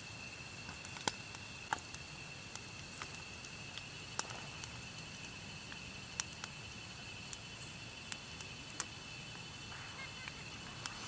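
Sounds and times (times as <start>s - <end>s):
faint frying hiss: 0.0s - 11.0s.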